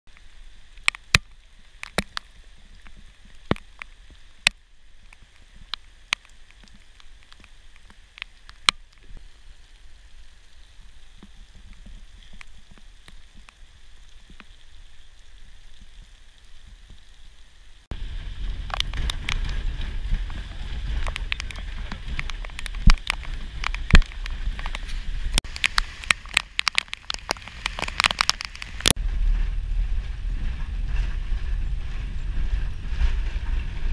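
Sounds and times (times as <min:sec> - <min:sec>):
raindrops ticking on microphone: 0:00.1 - 0:33.9
steady rain falling: 0:00.1 - 0:33.9
vehicle driving on wet dirt road: 0:17.8 - 0:33.9.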